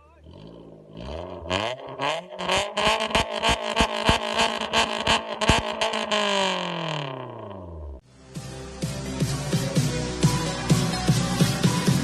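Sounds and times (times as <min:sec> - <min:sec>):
car engine revving: 0:00.0 - 0:08.0
exhaust cracks: 0:00.0 - 0:08.0.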